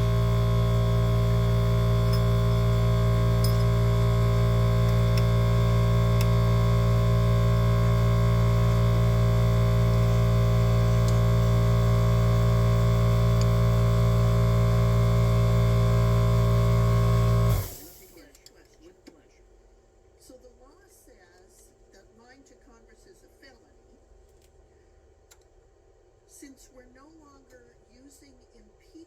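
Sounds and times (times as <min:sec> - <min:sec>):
machine humming: 0:00.0 - 0:18.1.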